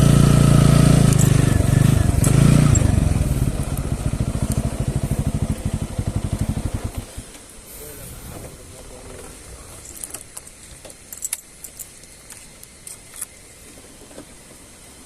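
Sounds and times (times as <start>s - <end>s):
motorcycle engine revving and idling: 0.0s - 7.4s.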